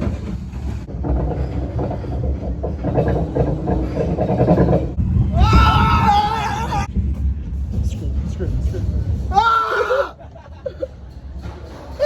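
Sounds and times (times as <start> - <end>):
ride car clattering on track: 0.0 - 9.4.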